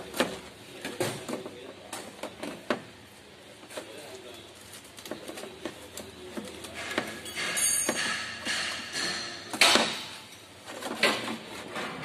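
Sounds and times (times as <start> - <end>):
sheet metal rattling and scraping: 6.4 - 12.0.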